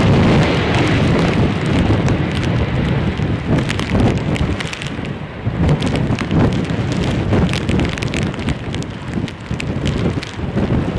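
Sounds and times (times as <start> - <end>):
crackles: 0.0 - 10.9
gusty storm wind on microphone: 0.0 - 10.9.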